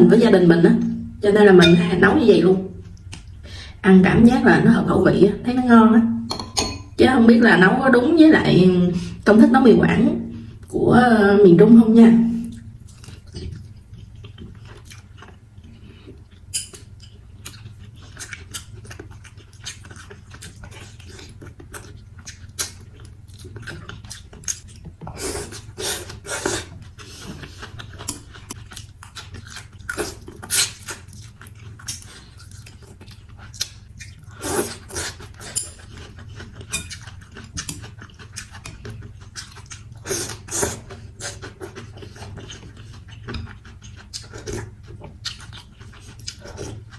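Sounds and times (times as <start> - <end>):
steady low hum: 0.0 - 46.9
person chewing food: 12.5 - 46.9.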